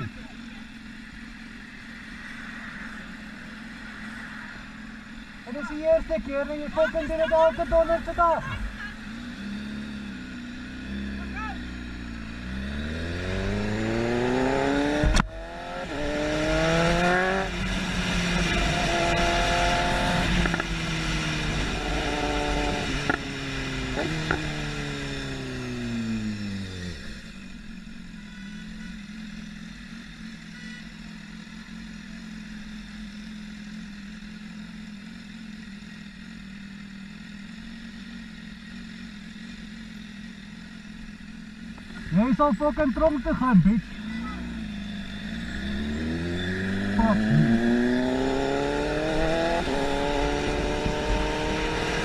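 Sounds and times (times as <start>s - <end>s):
motorcycle engine: 0.0s - 52.0s.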